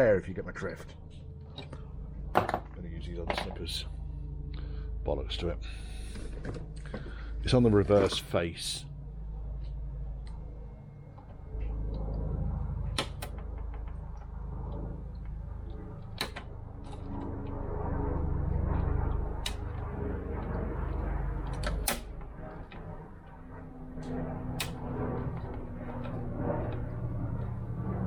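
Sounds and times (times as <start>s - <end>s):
low rumble: 0.0s - 28.0s
wire snippers snapping metal: 13.0s - 13.5s, 19.4s - 19.8s, 21.5s - 22.2s, 24.6s - 24.8s.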